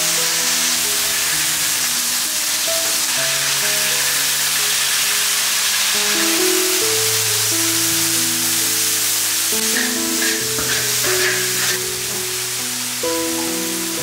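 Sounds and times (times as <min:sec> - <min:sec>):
snails sizzling in a wok: 0:00.0 - 0:14.0
soft background music: 0:00.0 - 0:14.0.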